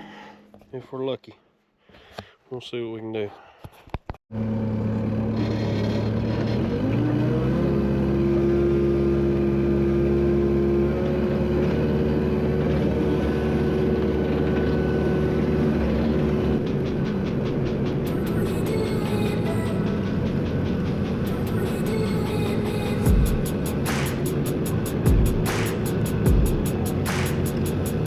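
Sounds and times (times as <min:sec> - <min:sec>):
truck engine under load: 0:04.4 - 0:17.5.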